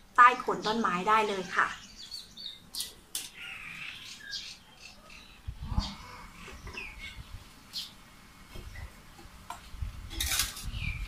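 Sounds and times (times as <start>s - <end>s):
bird chirps: 0.2s - 8.0s, 10.6s - 11.0s.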